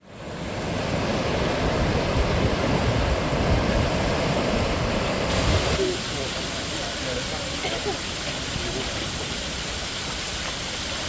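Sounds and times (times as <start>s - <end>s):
sea surf rushing on a beach: 0.0s - 11.0s
wind rumbling on microphone: 0.1s - 5.8s.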